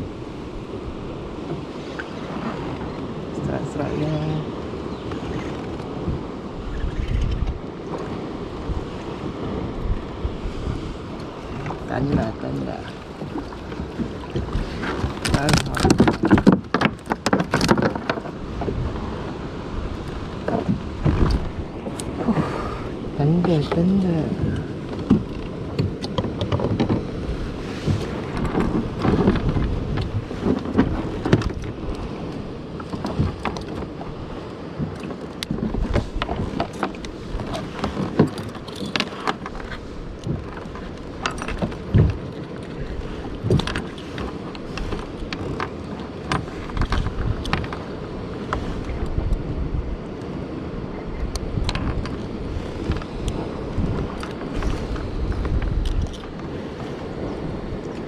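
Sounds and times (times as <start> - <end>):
water lapping around kayak: 0.0 - 58.0
wind buffeting microphone: 0.0 - 58.0
small knocks and clicks: 43.5 - 47.8.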